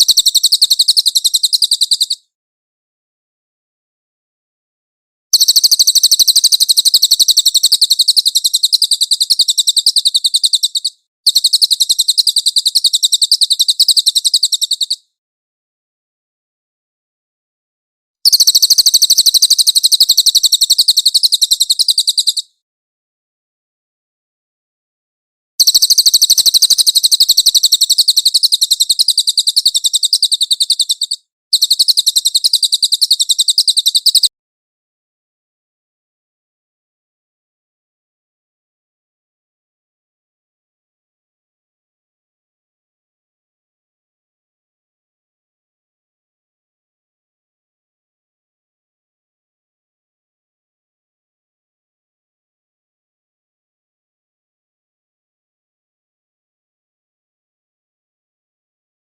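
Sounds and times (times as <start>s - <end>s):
bird singing high-pitched trill: 0.0s - 2.2s, 5.4s - 15.1s, 18.3s - 22.6s, 25.6s - 34.3s.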